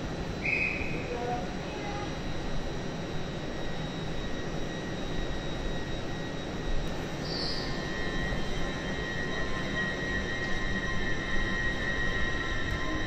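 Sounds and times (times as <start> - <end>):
train mechanical hum: 0.0 - 13.0
high whines: 3.4 - 13.0.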